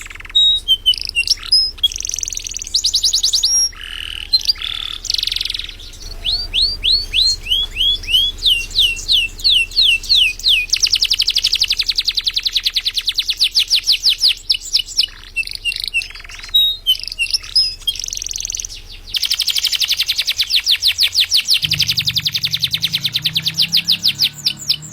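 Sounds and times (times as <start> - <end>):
canary singing: 0.0 - 24.9.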